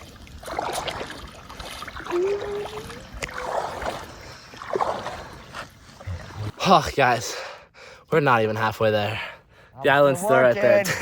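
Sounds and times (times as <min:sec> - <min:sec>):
paddle strokes splashing water: 0:00.0 - 0:06.5
water sloshing around board: 0:00.0 - 0:06.6.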